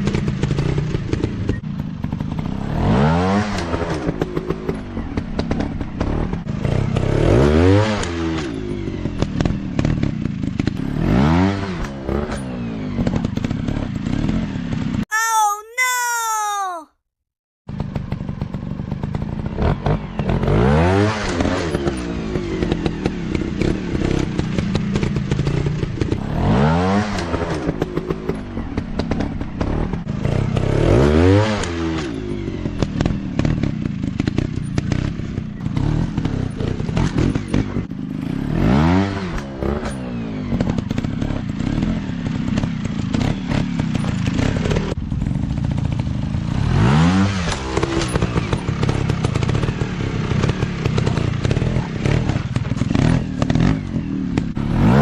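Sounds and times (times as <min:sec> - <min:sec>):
clatter: 0:31.6 - 0:38.4, 0:39.2 - 0:46.5, 0:47.4 - 0:54.6.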